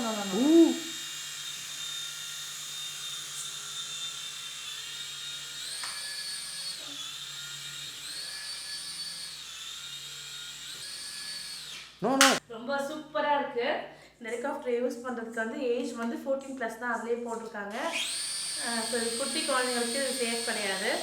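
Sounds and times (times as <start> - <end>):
toy helicopter motors whining: 0.0 - 12.0, 17.8 - 21.0.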